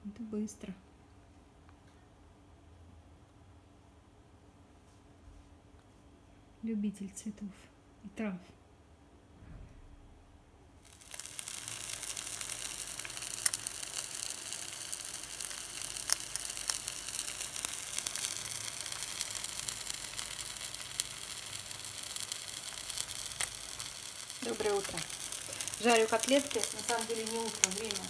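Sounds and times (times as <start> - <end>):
meat sizzling in hot oil: 10.8 - 28.0.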